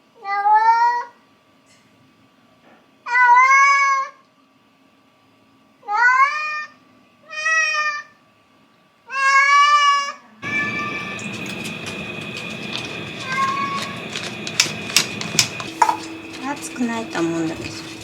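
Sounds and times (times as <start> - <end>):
cat meowing: 9.1 - 11.3, 13.2 - 14.0
steady noise: 10.4 - 18.0.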